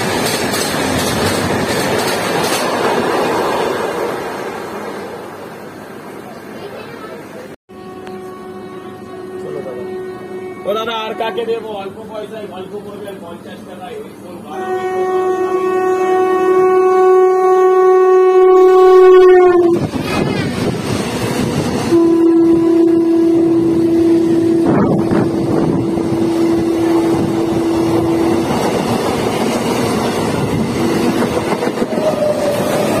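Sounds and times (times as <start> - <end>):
passing train rattling: 0.0 - 33.0
train horn: 7.7 - 12.0, 14.5 - 19.9, 21.8 - 28.8.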